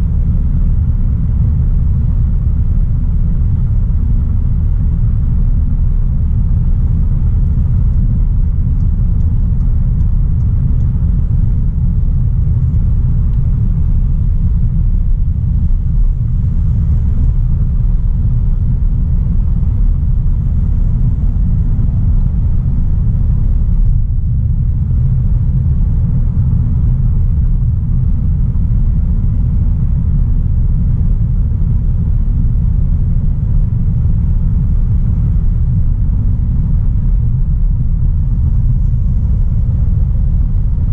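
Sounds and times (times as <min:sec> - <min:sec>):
road and tyre noise: 0:00.0 - 0:40.9.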